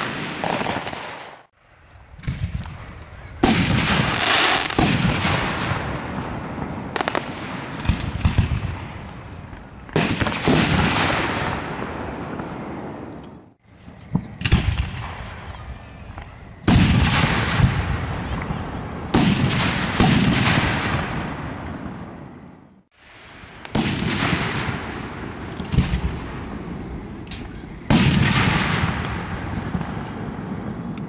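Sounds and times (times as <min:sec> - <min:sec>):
fireworks booming: 0:00.0 - 0:01.5, 0:02.1 - 0:31.0.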